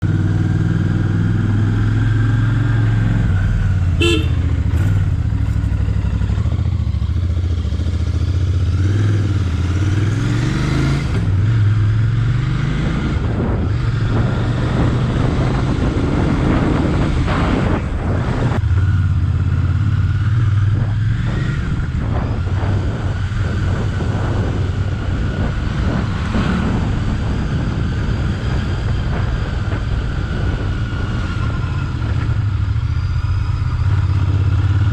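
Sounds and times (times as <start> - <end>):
motorcycle engine running: 0.0 - 34.9
wind rushing over microphone: 0.0 - 34.9
short horn toot: 4.0 - 4.6.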